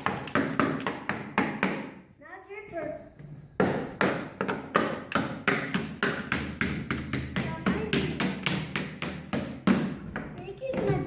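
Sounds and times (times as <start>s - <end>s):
hand hammer striking: 3.6s - 10.3s.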